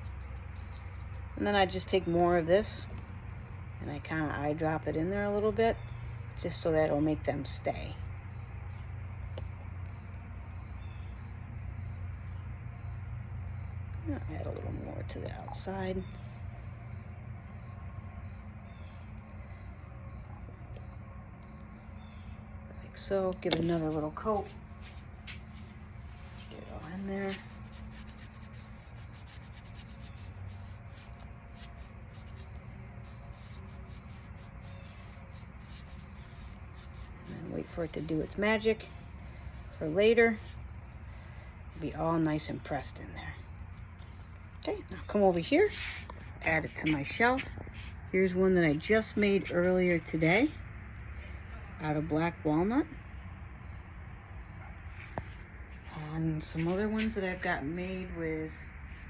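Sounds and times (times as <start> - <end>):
steady low hum: 0.0 - 59.0
rubbing on wood: 23.6 - 38.7.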